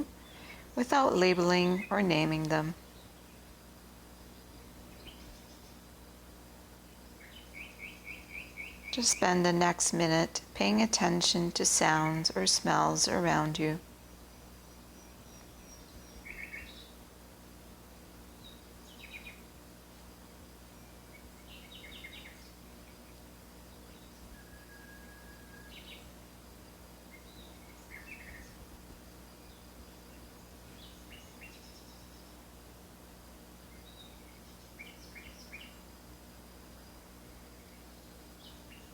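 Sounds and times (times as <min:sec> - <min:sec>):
birds chirping: 0:00.0 - 0:03.4, 0:07.2 - 0:17.0
steady low hum: 0:00.0 - 0:38.9
whistled bird note: 0:24.4 - 0:25.9.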